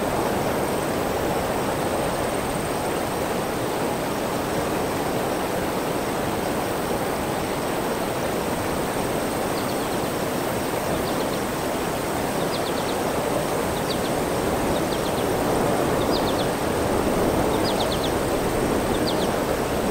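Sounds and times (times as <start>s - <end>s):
steady rushing noise: 0.0s - 19.9s
bird chirping: 9.5s - 10.2s, 10.9s - 11.5s, 12.3s - 16.6s, 17.4s - 18.2s, 18.8s - 19.4s.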